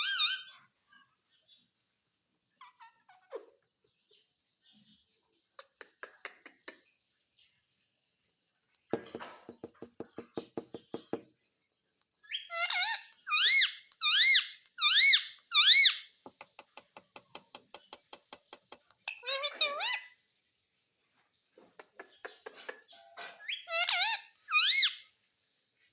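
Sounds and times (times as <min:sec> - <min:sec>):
parrot shrill calls: 0:00.0 - 0:00.6, 0:12.3 - 0:16.1, 0:19.1 - 0:20.2, 0:23.4 - 0:25.1
parrot rapid clicking: 0:16.3 - 0:19.2.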